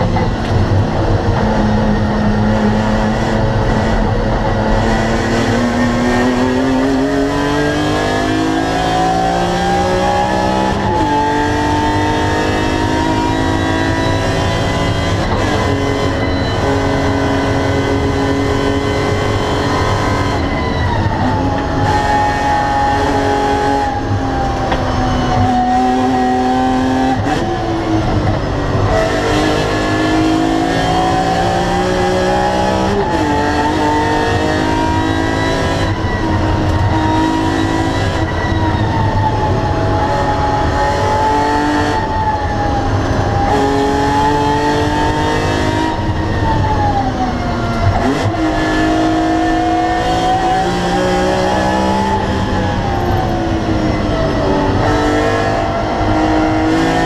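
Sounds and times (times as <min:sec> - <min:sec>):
car engine revving through gears: 0:00.0 - 0:57.0.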